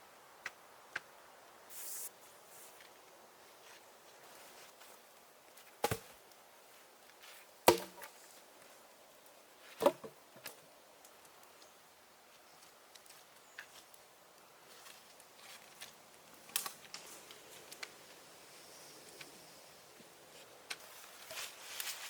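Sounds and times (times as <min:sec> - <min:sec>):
axe chopping wood: 0:05.8 - 0:06.2, 0:07.7 - 0:08.1.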